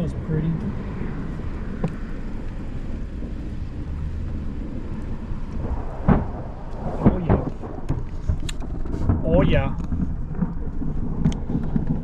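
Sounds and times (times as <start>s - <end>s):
low thunder rumble: 0.0s - 12.0s
sharp thunder cracks: 3.1s - 12.0s.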